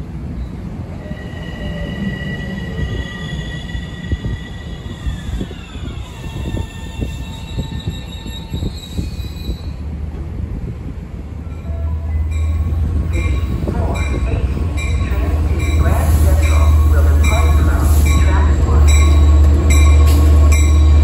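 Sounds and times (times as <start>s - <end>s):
diesel locomotive engine drone: 0.0s - 21.0s
wheel and brake squeal: 1.0s - 9.8s.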